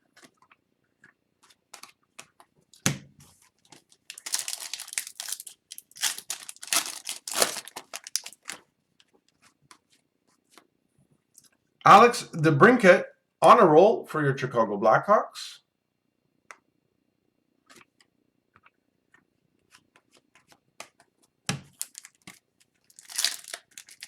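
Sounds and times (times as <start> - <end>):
cards and wrapping crinkling: 2.8 - 9.9, 21.7 - 24.0.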